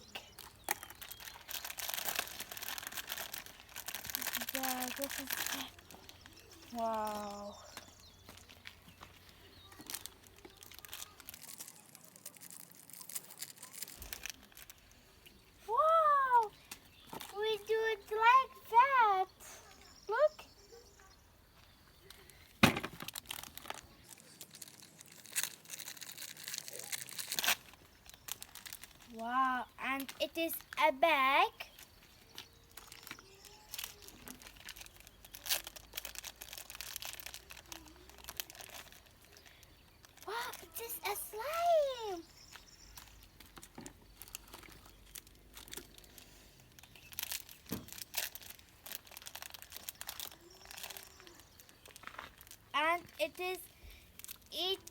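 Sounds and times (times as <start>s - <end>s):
packaging crinkling: 0.3s - 7.2s, 8.2s - 14.9s, 22.2s - 29.1s, 31.7s - 53.2s, 53.8s - 54.9s
packaging ripping: 0.6s - 6.2s, 9.8s - 14.8s, 22.7s - 29.0s, 32.8s - 39.4s, 44.2s - 52.6s.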